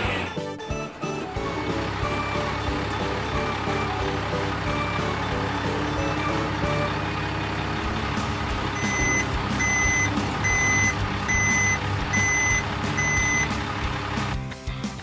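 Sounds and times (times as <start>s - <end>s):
truck engine running: 0.0s - 15.0s
truck reversing alarm beeping: 0.6s - 7.5s, 8.6s - 13.6s.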